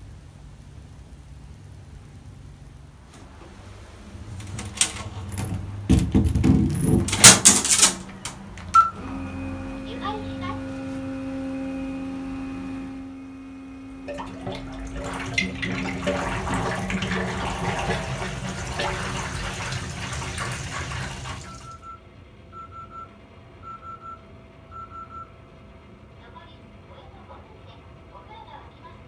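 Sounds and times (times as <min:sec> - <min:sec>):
water rushing through fixture: 0:02.1 - 0:21.8.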